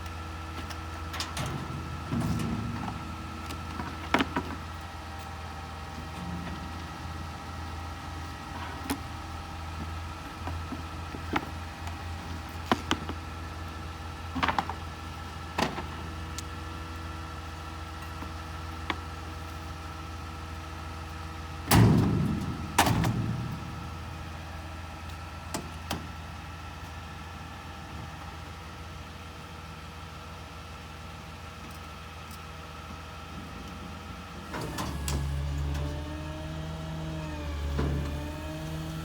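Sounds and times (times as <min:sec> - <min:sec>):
garbage truck engine idling: 0:00.0 - 0:39.0
sharp knocks and clanks: 0:21.7 - 0:24.9
loud bangs: 0:21.7 - 0:25.0.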